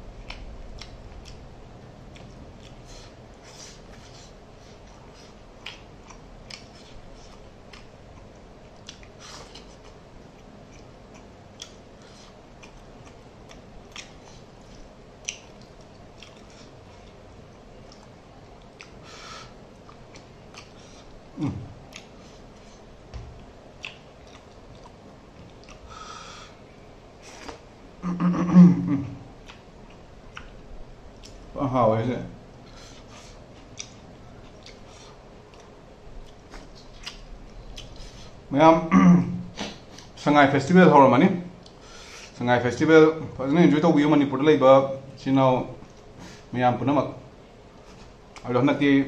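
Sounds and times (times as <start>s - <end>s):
close chewing with lip smacks: 0.1s - 19.0s, 19.8s - 21.2s, 21.8s - 22.9s, 23.8s - 25.9s, 29.4s - 31.5s, 33.0s - 38.4s.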